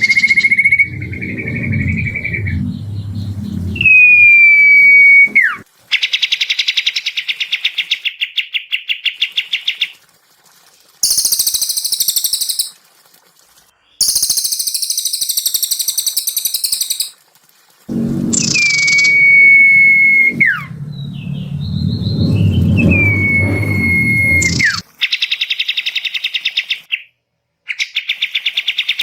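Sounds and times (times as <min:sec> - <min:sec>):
songbird whistle and trill: 0:00.0 - 0:05.6, 0:11.0 - 0:12.7, 0:14.0 - 0:17.1, 0:18.3 - 0:24.8
bird buzzing rattles: 0:11.0 - 0:12.7, 0:14.0 - 0:17.1.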